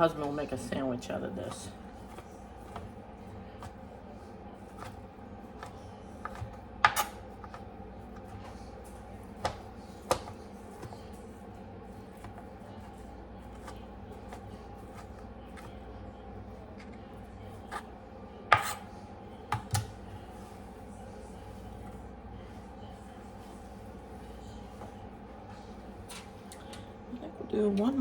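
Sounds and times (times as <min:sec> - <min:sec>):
knife on cutting board: 0:18.5 - 0:18.9.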